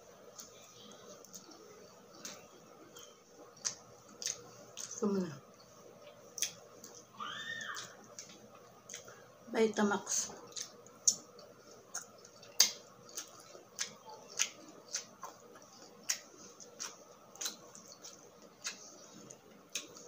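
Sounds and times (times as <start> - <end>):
chewing with wet crunching: 0.2 - 9.2, 10.1 - 20.0.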